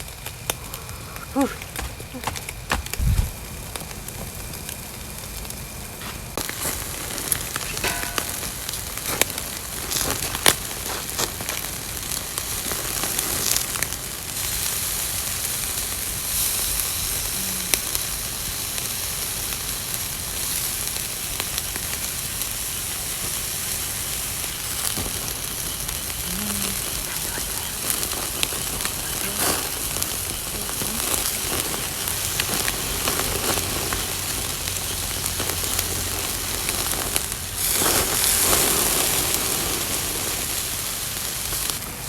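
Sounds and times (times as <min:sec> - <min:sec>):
skewers sizzling on a grill: 0:00.0 - 0:42.0.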